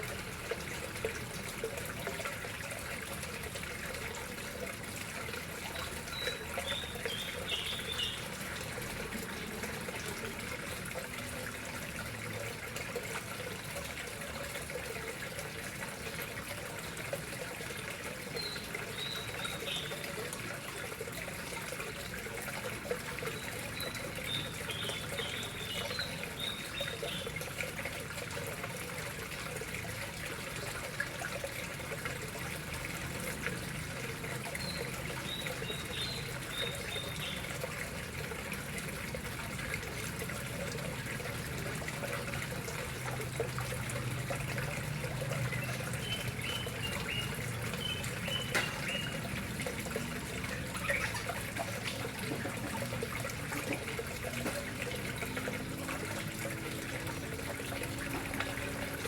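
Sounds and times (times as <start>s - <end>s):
water trickling into a pond: 0.0s - 59.0s
high bird chirps: 50.8s - 51.3s.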